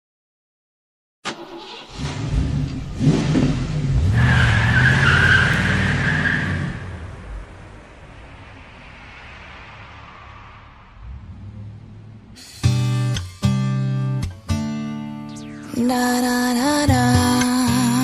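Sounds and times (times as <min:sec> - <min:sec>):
car engine revving: 0:01.3 - 0:13.6
high tyre squeal: 0:03.0 - 0:07.4, 0:08.0 - 0:12.8.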